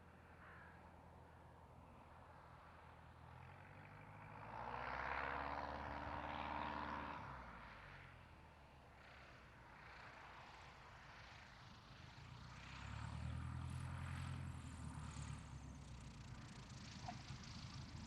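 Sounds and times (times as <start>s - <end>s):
propeller aircraft engine droning: 7.2s - 18.0s.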